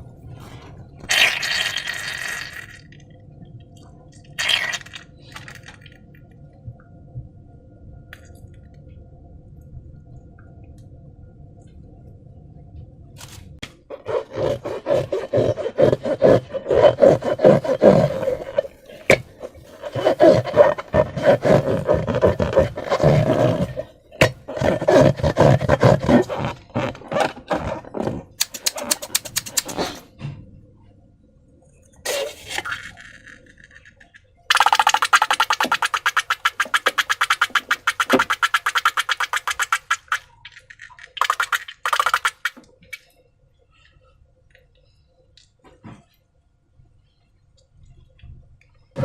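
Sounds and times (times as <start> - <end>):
faint steady hum: 0.0 - 49.0
squeaks and squelches of slime balloons: 4.4 - 5.9, 13.9 - 30.1, 32.1 - 43.1.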